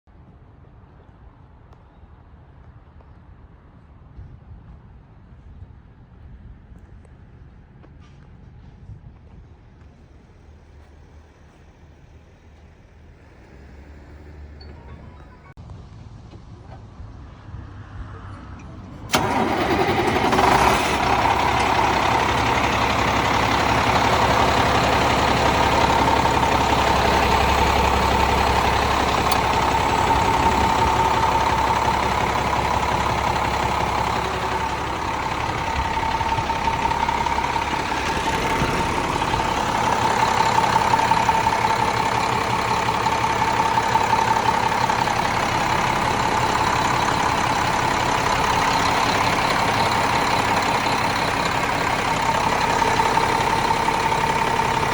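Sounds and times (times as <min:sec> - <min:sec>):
diesel truck engine idling: 0:09.9 - 0:15.6, 0:18.8 - 0:54.9.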